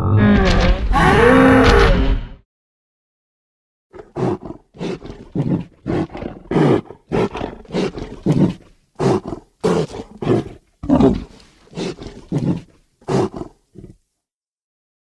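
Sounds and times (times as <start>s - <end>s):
creature short roaring calls: 0.0s - 2.2s.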